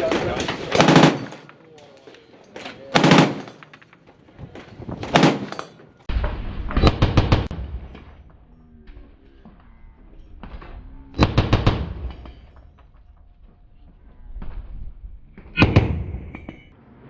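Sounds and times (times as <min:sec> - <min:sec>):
rapid rifle fire: 0:00.0 - 0:01.5, 0:02.9 - 0:03.6, 0:05.0 - 0:05.6.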